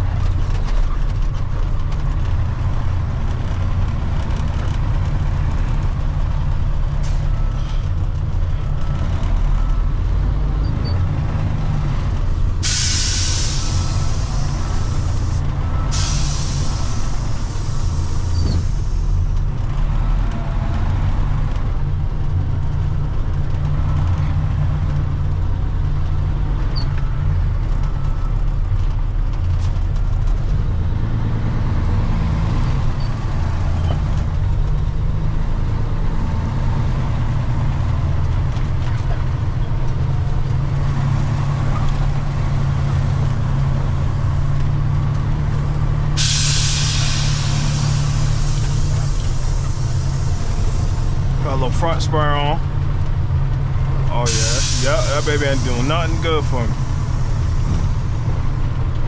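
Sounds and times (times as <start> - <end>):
truck diesel engine running: 0.0 - 59.0
air hiss burst: 12.4 - 19.2, 44.3 - 51.8, 54.2 - 58.6.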